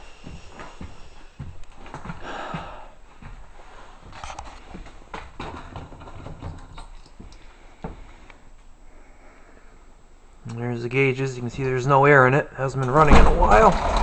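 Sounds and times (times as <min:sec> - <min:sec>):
footsteps and thumps: 0:00.0 - 0:08.2.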